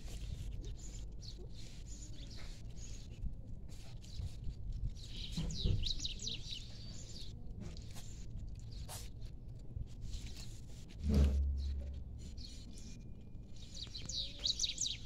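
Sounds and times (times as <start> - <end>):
small birds twittering: 0.1 - 9.1, 11.4 - 15.0.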